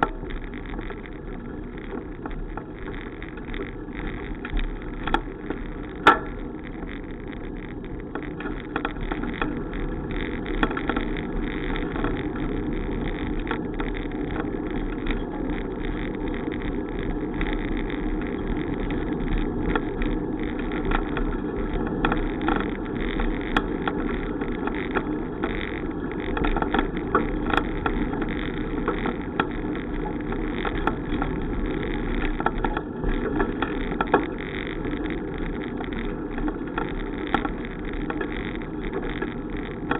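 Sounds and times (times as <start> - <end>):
bicycle rolling: 0.0 - 39.9
small clicks and rattles: 0.0 - 39.9.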